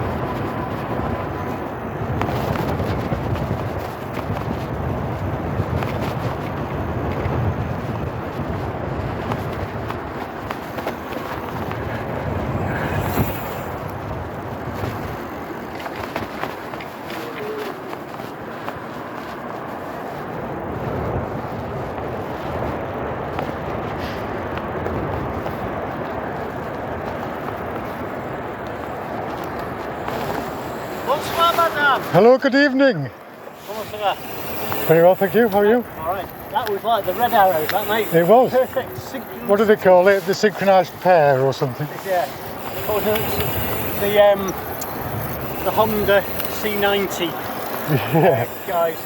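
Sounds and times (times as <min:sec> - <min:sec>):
wind on microphone: 0:00.0 - 0:32.2, 0:33.1 - 0:49.0
bike clicks and knocks: 0:00.0 - 0:32.3, 0:33.2 - 0:49.0
bicycle tyres rumbling: 0:00.0 - 0:49.0.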